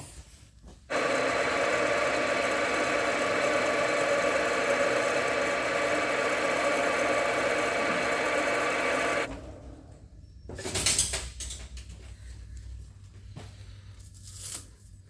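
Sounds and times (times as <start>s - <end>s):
metal lathe running: 0.9s - 9.7s.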